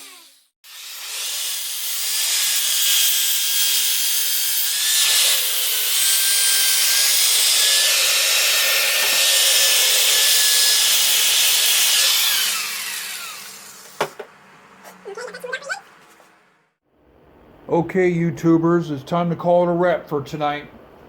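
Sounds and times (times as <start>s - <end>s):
power grinder grinding steel: 0.0s - 14.0s.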